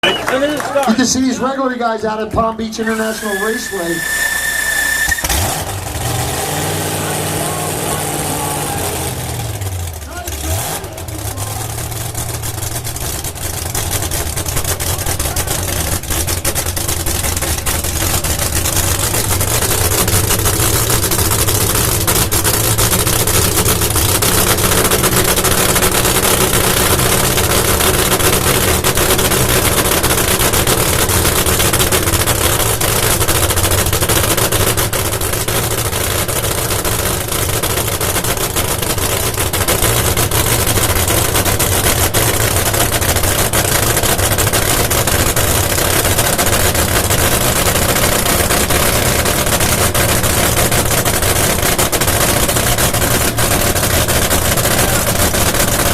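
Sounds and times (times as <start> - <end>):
crackling engine idling: 0.0 - 55.9.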